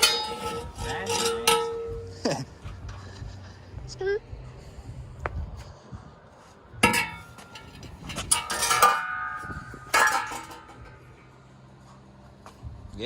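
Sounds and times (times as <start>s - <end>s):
metal exhaust pipe clanging: 0.0s - 2.5s, 6.8s - 11.4s.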